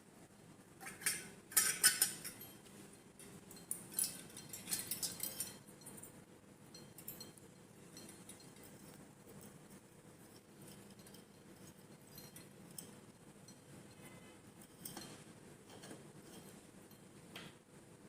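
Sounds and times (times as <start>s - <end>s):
small metal parts clinking: 0.8s - 2.6s, 3.5s - 6.1s.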